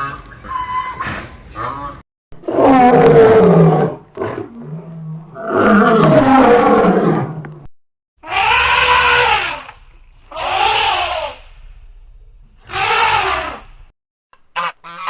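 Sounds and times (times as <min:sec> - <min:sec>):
animal calls: 0:08.2 - 0:11.6, 0:12.6 - 0:13.9.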